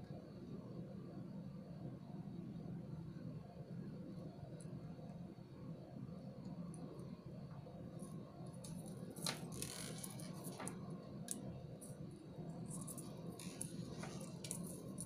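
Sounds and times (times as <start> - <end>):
steady low hum: 0.0 - 15.0
beads and pliers clicking: 12.7 - 15.0.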